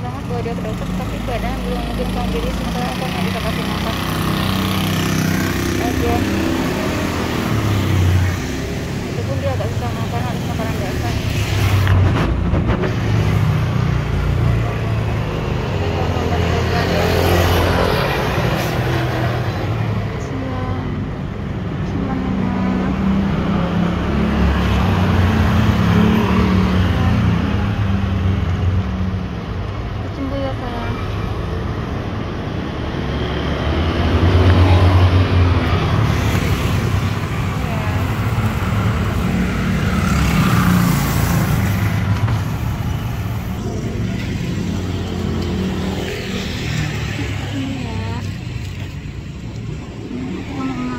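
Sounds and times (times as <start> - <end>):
road traffic rumble: 0.0 - 50.9
vehicle engines humming: 0.0 - 50.9
vehicle passing close: 32.6 - 50.9.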